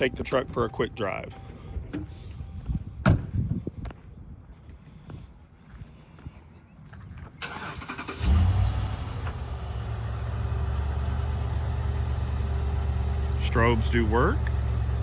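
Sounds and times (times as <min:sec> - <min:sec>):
engine starting and idling: 0:07.4 - 0:13.8.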